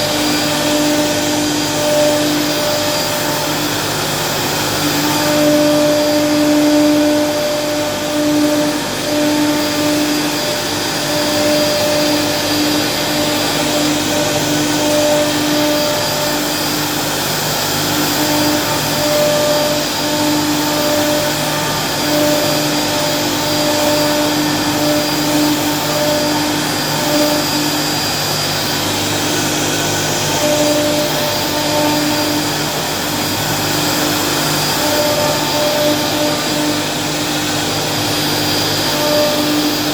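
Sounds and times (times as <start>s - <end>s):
cnc machine motor whine: 0.0s - 39.9s
intermittent humming tone: 0.0s - 39.9s.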